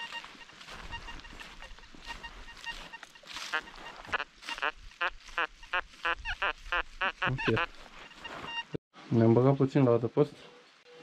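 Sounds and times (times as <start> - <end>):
bird calling rapidly: 0.0 - 8.7.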